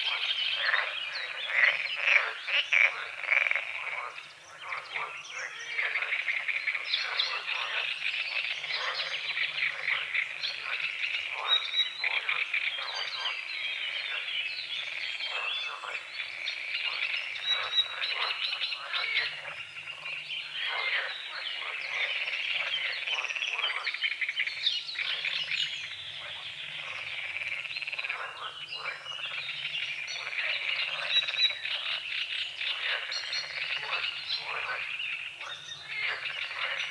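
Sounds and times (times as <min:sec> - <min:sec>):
frogs croaking: 0:00.0 - 0:36.9.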